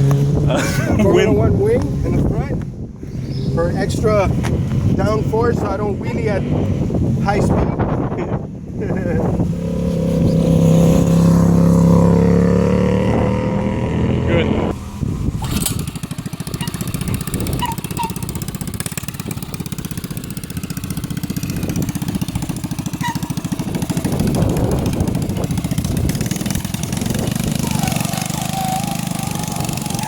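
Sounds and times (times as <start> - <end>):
go-kart engine running: 15.4 - 30.0.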